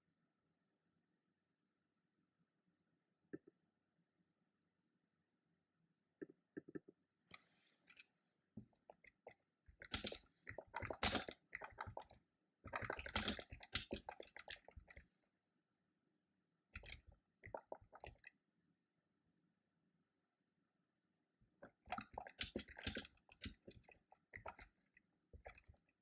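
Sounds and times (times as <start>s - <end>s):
typing on a computer keyboard: 9.8s - 12.0s, 12.7s - 14.5s.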